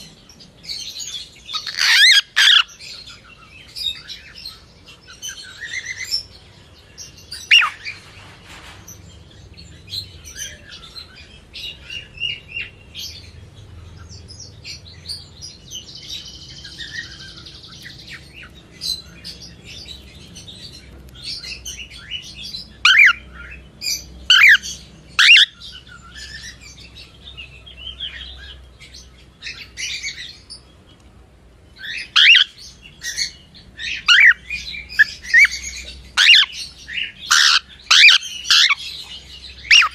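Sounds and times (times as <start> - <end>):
sharp sweeping bird calls: 0.0 - 30.7, 31.8 - 39.9
cockatiel chirping: 1.5 - 2.7, 24.3 - 25.6, 35.0 - 36.6, 37.3 - 38.8.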